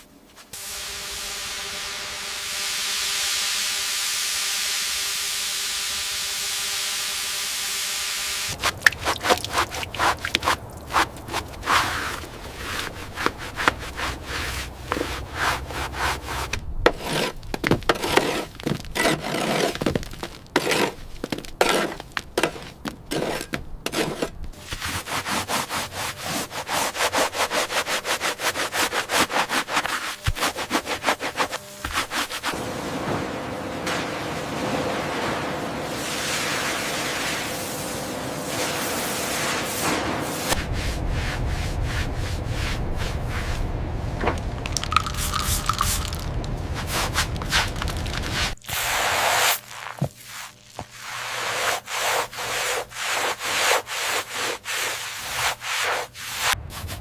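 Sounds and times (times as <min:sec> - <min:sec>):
rubbing and scraping strokes: 0:08.5 - 0:32.6, 0:44.7 - 0:57.0.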